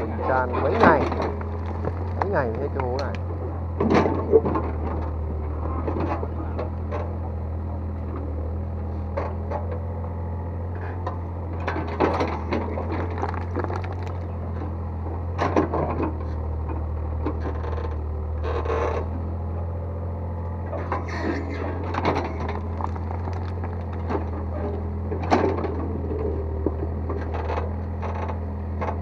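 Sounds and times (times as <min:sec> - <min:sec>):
excavator engine running: 0:00.0 - 0:29.0
bucket clanking and scraping dirt: 0:00.3 - 0:03.1, 0:10.8 - 0:16.2, 0:20.7 - 0:25.9.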